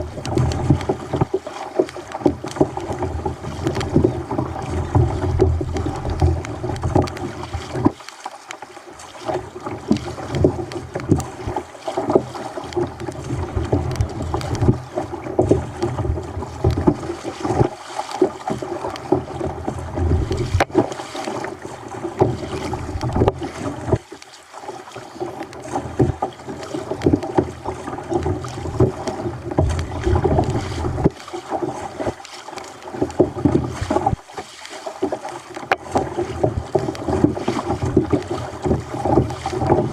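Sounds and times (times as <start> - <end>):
water splashing against kayak hull: 0.0 - 39.9
wind on microphone: 19.3 - 20.8.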